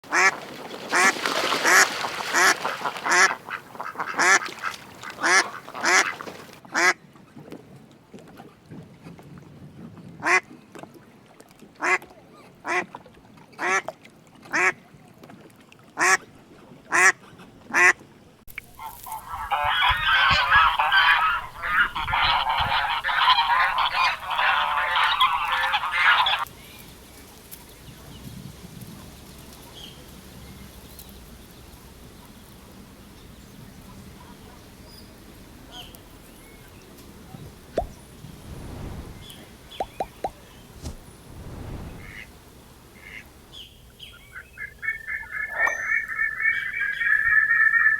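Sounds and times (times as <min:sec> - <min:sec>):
dense overlapping duck calls: 0:00.9 - 0:07.0, 0:18.8 - 0:26.5, 0:43.0 - 0:43.3, 0:44.1 - 0:47.9
duck quacking loudly: 0:01.0 - 0:07.0, 0:18.8 - 0:26.5.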